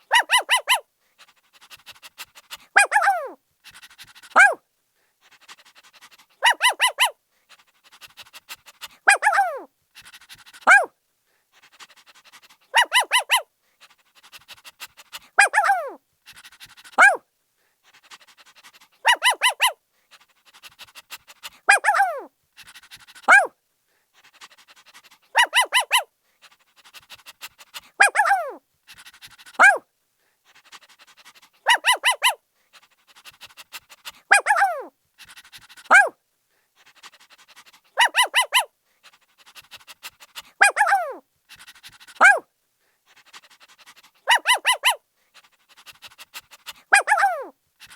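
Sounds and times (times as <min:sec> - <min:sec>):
puppy yapping: 0:00.1 - 0:00.8, 0:02.8 - 0:03.4, 0:04.3 - 0:04.6, 0:06.4 - 0:07.2, 0:09.1 - 0:09.7, 0:10.6 - 0:10.9, 0:12.7 - 0:13.4, 0:15.4 - 0:16.0, 0:17.0 - 0:17.2, 0:19.0 - 0:19.8, 0:21.7 - 0:22.3, 0:23.2 - 0:23.5, 0:25.3 - 0:26.1, 0:27.9 - 0:28.6, 0:29.6 - 0:29.8, 0:31.6 - 0:32.4, 0:34.2 - 0:34.9, 0:35.9 - 0:36.1, 0:38.0 - 0:38.7, 0:40.6 - 0:41.2, 0:42.1 - 0:42.4, 0:44.3 - 0:45.0, 0:46.9 - 0:47.9
puppy yelping: 0:00.1 - 0:00.8, 0:02.8 - 0:03.4, 0:04.3 - 0:04.6, 0:06.4 - 0:07.2, 0:09.1 - 0:09.7, 0:10.6 - 0:10.9, 0:12.7 - 0:13.4, 0:15.4 - 0:16.0, 0:17.0 - 0:17.2, 0:19.0 - 0:19.8, 0:21.7 - 0:22.3, 0:23.2 - 0:23.5, 0:25.3 - 0:26.1, 0:27.9 - 0:28.6, 0:29.6 - 0:29.8, 0:31.6 - 0:32.4, 0:34.2 - 0:34.9, 0:35.9 - 0:36.1, 0:38.0 - 0:38.7, 0:40.6 - 0:42.4, 0:44.2 - 0:45.0, 0:46.9 - 0:47.9.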